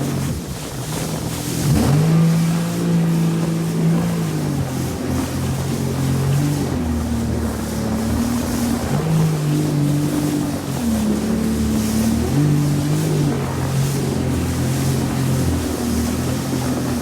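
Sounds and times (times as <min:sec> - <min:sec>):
jet ski engine: 0:00.0 - 0:17.0
water rushing: 0:00.0 - 0:17.0.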